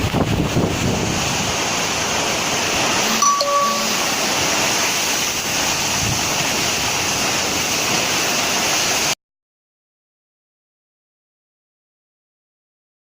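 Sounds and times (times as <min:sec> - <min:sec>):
strong storm wind rushing: 0:00.0 - 0:03.2, 0:04.0 - 0:07.7.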